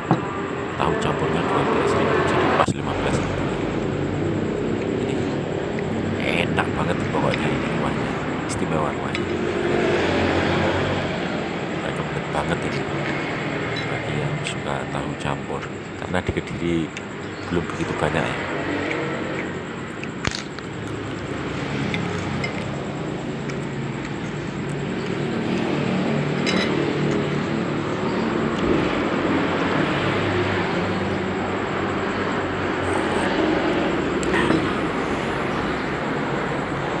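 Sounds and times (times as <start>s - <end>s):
passing traffic: 0.0s - 37.0s
clinking glasses dishes and spoons: 12.8s - 14.5s, 21.9s - 28.7s
sharp clicks: 18.8s - 21.1s.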